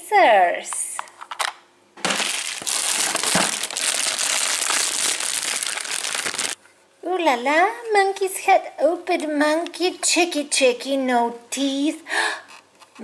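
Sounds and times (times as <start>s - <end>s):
plastic crinkling: 2.0s - 6.6s.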